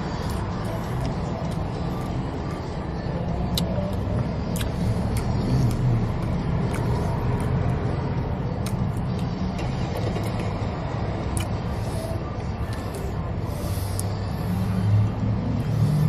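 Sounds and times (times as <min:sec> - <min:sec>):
chewing clicks: 0:03.5 - 0:07.8, 0:08.6 - 0:10.4, 0:11.3 - 0:11.6.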